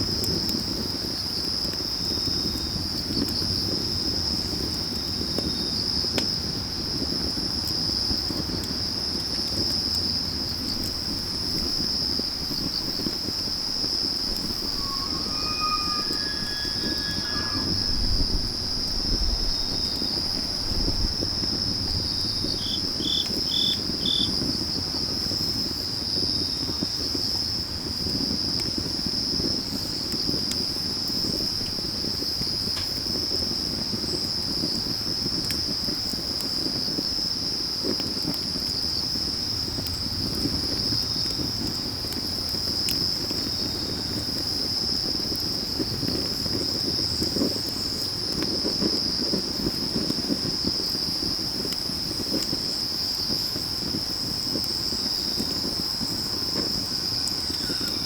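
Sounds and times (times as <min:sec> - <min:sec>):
crickets trilling: 0:10.1 - 0:27.5, 0:38.5 - 0:58.0
short high chirps: 0:14.3 - 0:18.7.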